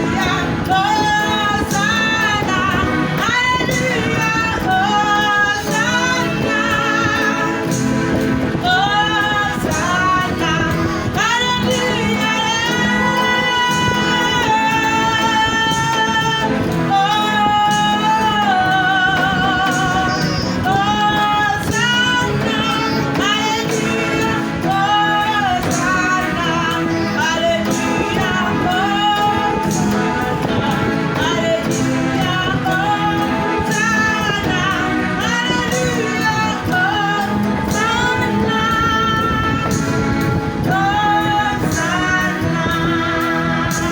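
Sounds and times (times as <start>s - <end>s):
high voice singing: 0.0s - 43.9s
instrumental accompaniment: 0.0s - 43.9s.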